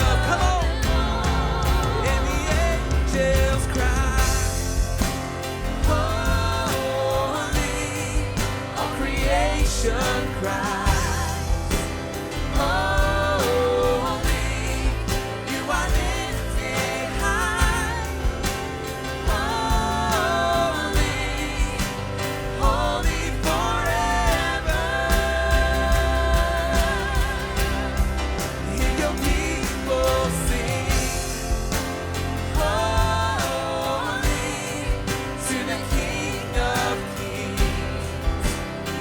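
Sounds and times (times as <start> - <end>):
bass: 0.0 - 39.0
drums: 0.0 - 39.0
piano: 0.0 - 39.0
singers holding long notes: 0.0 - 39.0.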